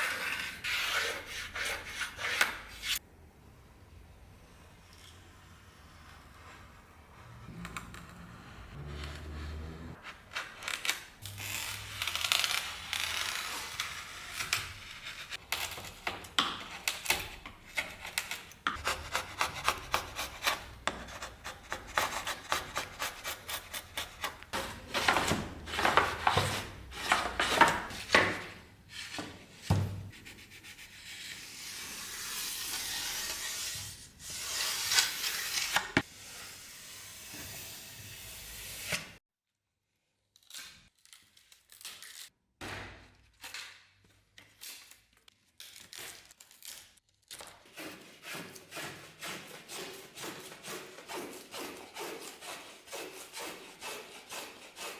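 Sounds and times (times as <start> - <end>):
file rasping on workpiece: 18.7 - 24.9, 47.8 - 54.9.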